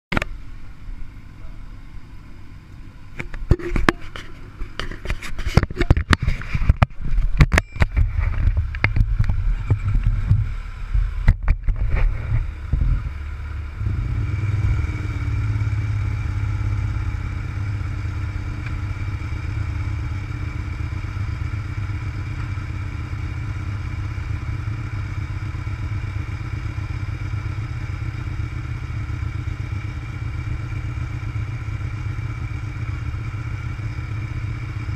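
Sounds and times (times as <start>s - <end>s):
motorcycle engine idling: 0.2s - 34.9s
low rumble: 5.9s - 20.3s.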